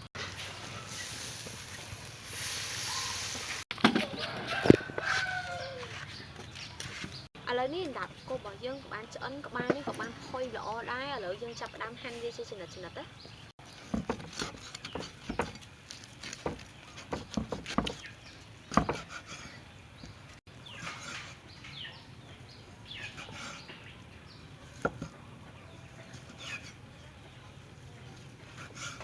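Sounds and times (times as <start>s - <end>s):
knife cutting on wooden board: 13.9s - 15.6s, 18.7s - 19.6s, 23.0s - 23.7s.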